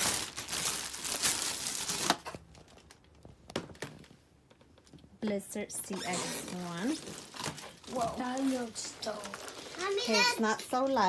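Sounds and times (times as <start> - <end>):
packaging crinkling: 0.0 - 4.2, 6.5 - 11.0.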